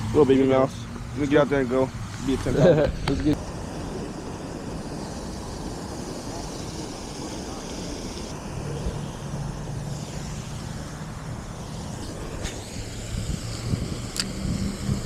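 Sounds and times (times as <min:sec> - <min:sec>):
motor running at even pitch: 0:00.0 - 0:15.0
outdoor background noise: 0:00.0 - 0:15.0
sharp high clicks: 0:14.0 - 0:14.4.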